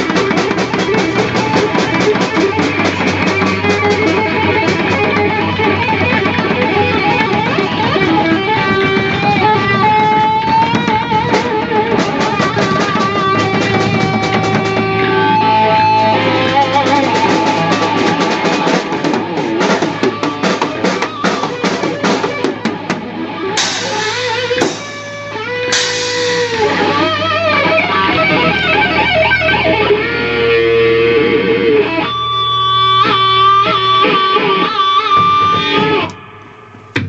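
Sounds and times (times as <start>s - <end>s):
drum kit: 0.0s - 30.4s, 32.4s - 37.0s
bass guitar: 0.0s - 37.0s
electric guitar lead line: 0.0s - 37.0s.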